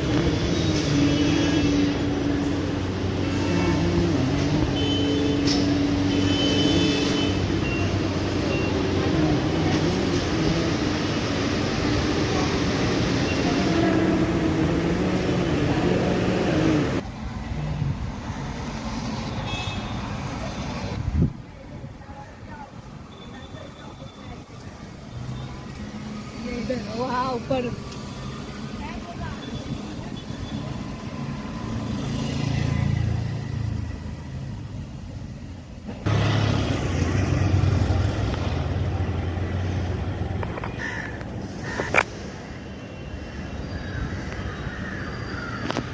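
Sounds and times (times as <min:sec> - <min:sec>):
vehicle engine hum: 0:00.0 - 0:17.7, 0:36.0 - 0:42.9
road or rail noise: 0:00.0 - 0:45.9.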